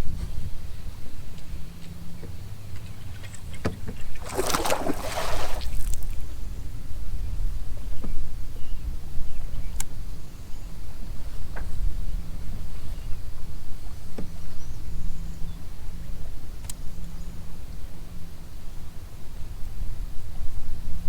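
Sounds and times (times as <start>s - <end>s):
wind and water rumble: 0.0s - 9.8s
rushing splash: 4.2s - 6.2s.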